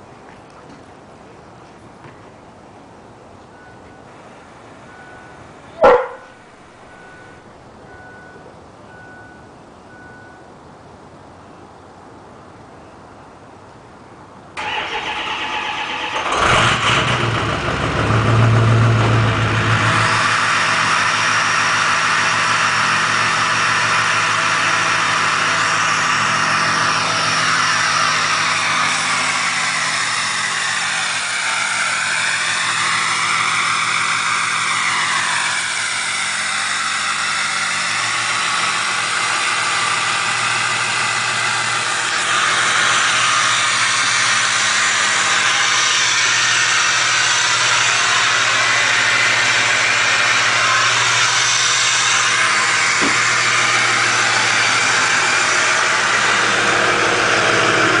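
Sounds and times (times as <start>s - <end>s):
diesel engine idling: 0.0s - 11.4s, 14.6s - 58.0s
high whistle: 4.9s - 10.5s.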